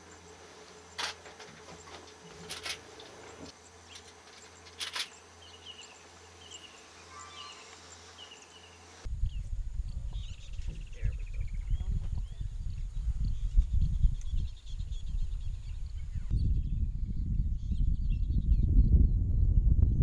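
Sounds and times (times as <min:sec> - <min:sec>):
high falling chirps: 0:03.2 - 0:09.1
low rumble: 0:09.1 - 0:20.0.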